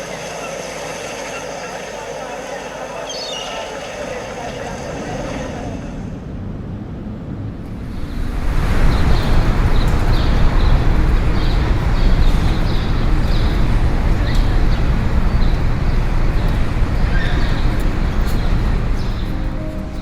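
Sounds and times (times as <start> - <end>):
hubbub of voices: 0.0 - 6.5.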